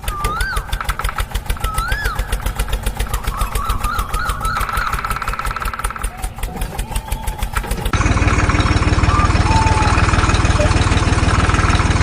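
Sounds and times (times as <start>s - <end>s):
rising and falling call: 0.0s - 11.1s
toy tractor engine chugging: 0.0s - 12.0s
wavering tones: 1.6s - 7.4s, 8.3s - 11.4s.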